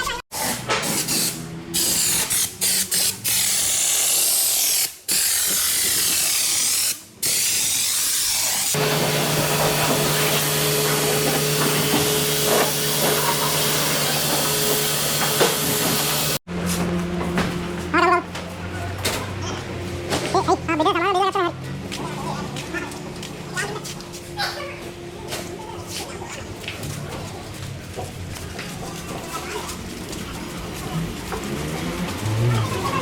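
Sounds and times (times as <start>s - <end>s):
sharp air hiss bursts: 0.3s - 8.8s
machine hum: 8.8s - 20.4s.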